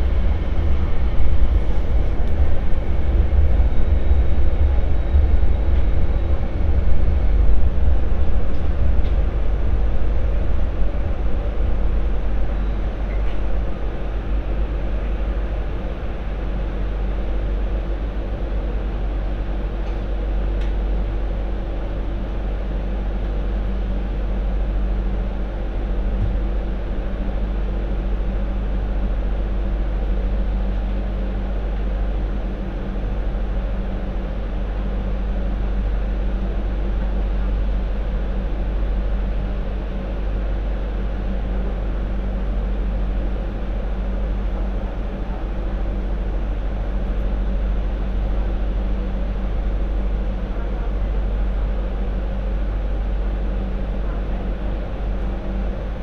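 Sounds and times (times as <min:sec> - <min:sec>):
wheels rumbling on track: 0:00.0 - 0:24.4
constant equipment hum: 0:00.0 - 0:56.0.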